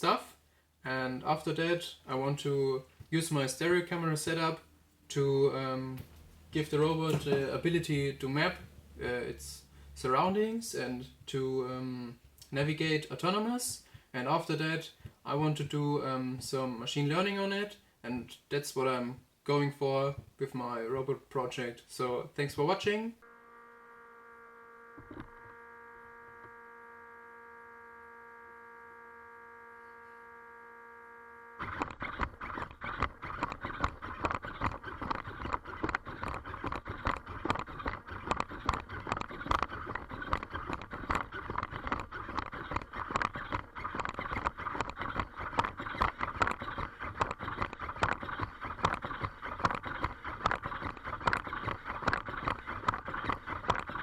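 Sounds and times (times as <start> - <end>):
electrical hum: 23.1 - 54.0
rapid clatter of clicks: 31.6 - 54.0.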